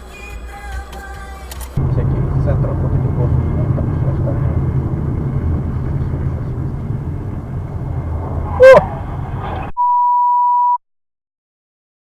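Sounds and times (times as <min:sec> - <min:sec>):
car road and engine noise: 0:00.5 - 0:09.8
pure beep tone: 0:08.5 - 0:08.9, 0:09.8 - 0:10.8
car horn toot: 0:08.5 - 0:09.0.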